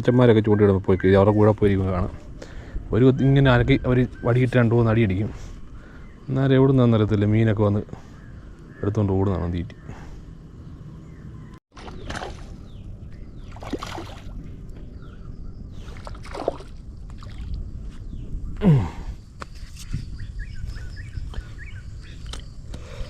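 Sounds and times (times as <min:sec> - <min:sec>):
river-bank background noise: 0:11.4 - 0:18.1
water splashing: 0:11.7 - 0:12.7, 0:13.4 - 0:14.4, 0:15.8 - 0:17.6.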